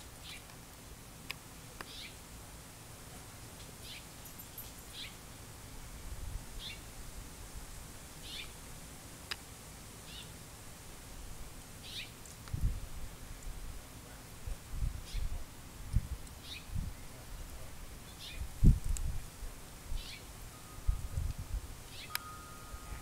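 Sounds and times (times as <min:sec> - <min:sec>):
background hiss: 0:00.0 - 0:23.0
small bird chirping: 0:01.9 - 0:02.2, 0:03.8 - 0:05.2, 0:08.2 - 0:08.5, 0:11.8 - 0:12.2, 0:16.4 - 0:16.7, 0:20.0 - 0:20.3, 0:21.9 - 0:22.2.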